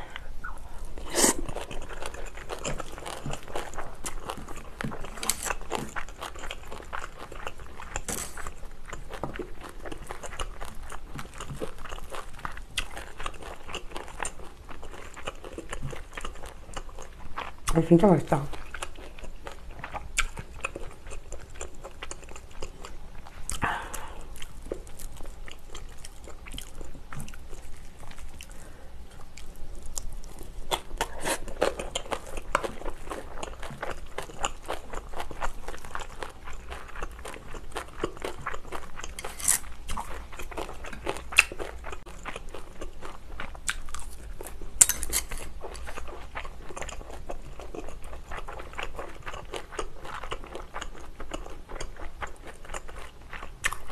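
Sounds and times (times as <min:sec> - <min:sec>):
wet mouth sounds: 0:00.0 - 0:03.4
chewing and crunching food: 0:00.0 - 0:53.9.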